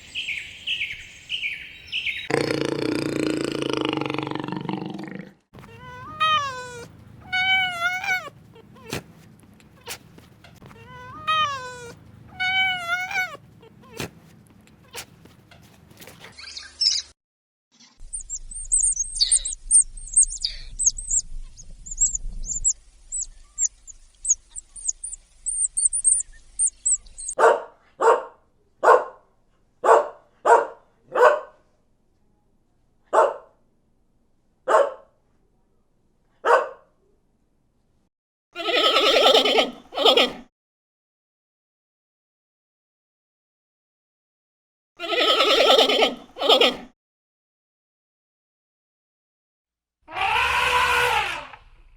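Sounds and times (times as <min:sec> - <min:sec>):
small birds twittering: 0:00.0 - 0:02.5, 0:16.4 - 0:17.2, 0:17.8 - 0:27.4
dog barking: 0:27.4 - 0:31.6, 0:33.1 - 0:33.6, 0:34.6 - 0:35.1, 0:36.4 - 0:36.9
wavering animal calls: 0:45.0 - 0:46.7, 0:50.1 - 0:51.7.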